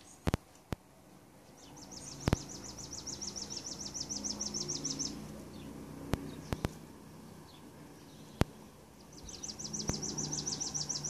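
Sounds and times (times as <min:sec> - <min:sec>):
songbird trilling: 0:01.6 - 0:06.8, 0:07.5 - 0:11.0
sharp clicks: 0:02.2 - 0:02.6, 0:06.1 - 0:06.8.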